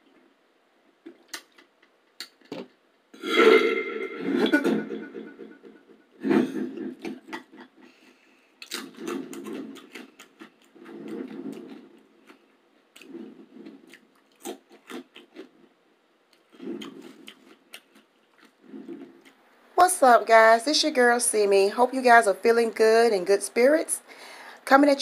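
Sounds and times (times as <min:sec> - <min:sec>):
wet mouth sounds: 0:01.1 - 0:02.4, 0:08.6 - 0:15.6, 0:16.4 - 0:19.4
person chewing crunchy food: 0:08.6 - 0:15.7, 0:16.3 - 0:19.4.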